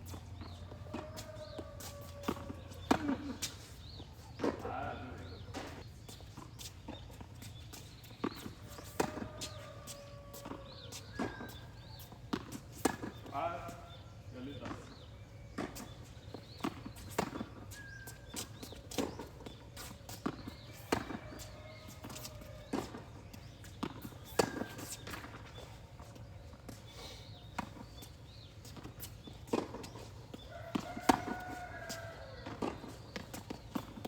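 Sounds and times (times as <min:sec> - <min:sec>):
racquets striking tennis ball: 0:00.0 - 0:13.9, 0:14.5 - 0:34.0
shoe squeaks on court: 0:05.2 - 0:13.3, 0:15.6 - 0:25.8, 0:27.3 - 0:34.0.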